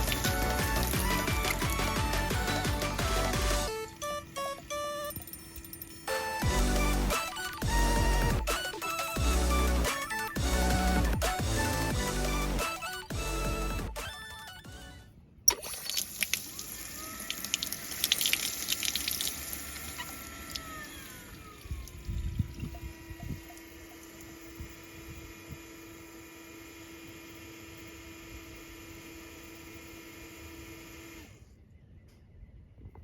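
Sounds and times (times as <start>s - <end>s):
well pump humming: 0.0s - 5.4s, 6.0s - 14.3s, 15.5s - 31.4s
water running from a tap: 15.5s - 20.7s.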